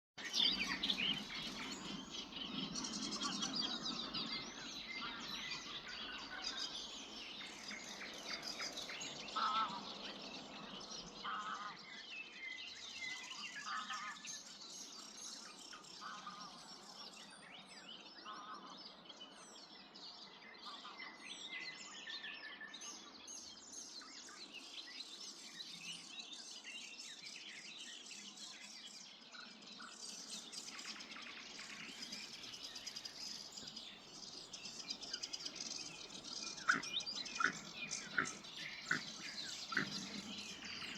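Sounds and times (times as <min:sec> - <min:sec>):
songbirds singing and chirping: 0:00.2 - 0:40.9
short lower bird calls: 0:32.4 - 0:40.9.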